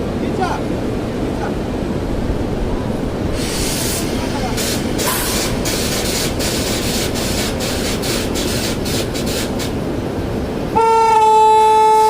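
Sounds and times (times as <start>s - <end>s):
train rumble and clatter: 0.0s - 12.0s
train horn: 10.7s - 12.0s.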